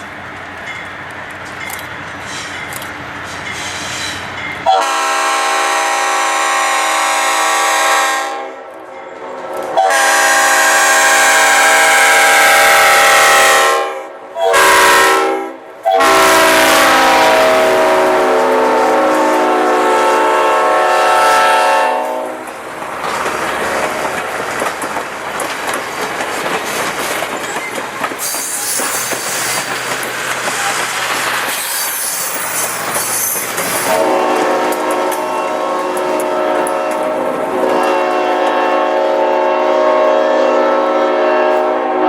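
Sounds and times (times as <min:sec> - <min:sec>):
locomotive air horn: 0:04.6 - 0:08.6, 0:09.6 - 0:22.4, 0:33.8 - 0:42.0
train wheels clattering over rail joints: 0:22.4 - 0:35.3.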